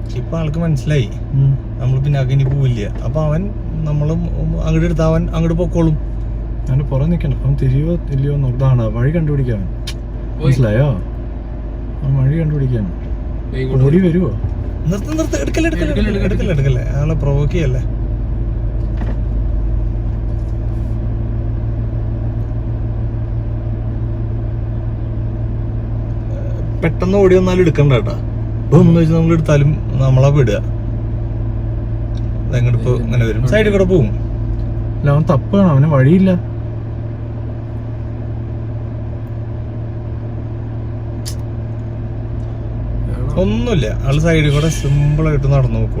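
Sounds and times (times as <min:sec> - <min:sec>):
car engine idling: 0:00.0 - 0:46.0
short click: 0:41.2 - 0:41.5.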